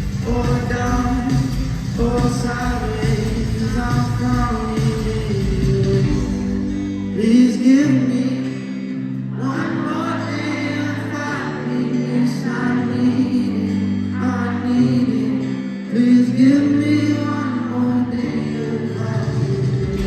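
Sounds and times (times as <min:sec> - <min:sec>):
band accompaniment: 0:00.0 - 0:07.2, 0:19.0 - 0:20.0
man singing: 0:00.0 - 0:20.0.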